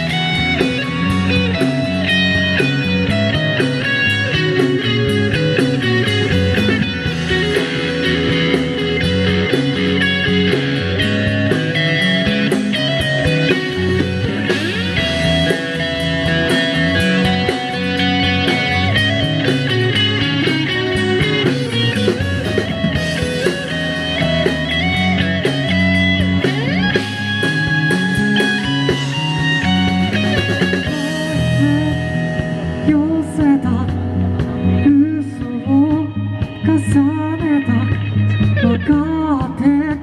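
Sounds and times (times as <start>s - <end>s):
rock band playing: 0.0s - 40.0s
person singing: 30.9s - 40.0s.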